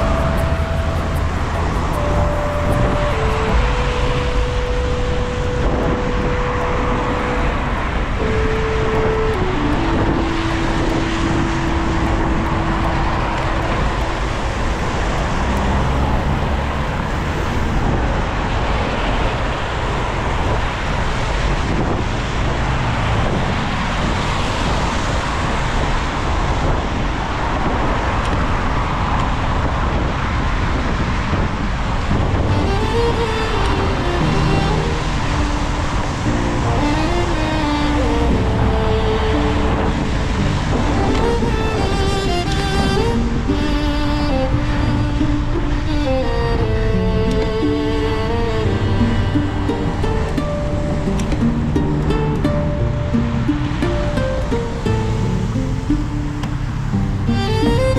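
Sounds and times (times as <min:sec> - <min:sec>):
heavy low rumble: 0:00.0 - 0:19.0, 0:31.9 - 0:57.9
long held musical notes: 0:00.0 - 0:20.9, 0:32.0 - 0:57.9
tyre noise on wet road: 0:00.0 - 0:52.8, 0:53.4 - 0:57.9
city traffic: 0:00.0 - 0:57.9.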